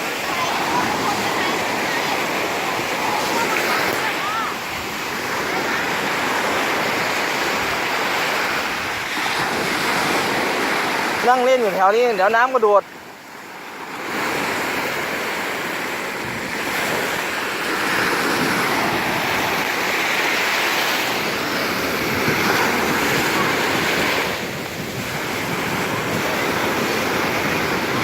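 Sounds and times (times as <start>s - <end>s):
waves breaking on a beach: 0.0s - 28.0s
wind buffeting microphone: 14.1s - 20.0s, 21.2s - 28.0s.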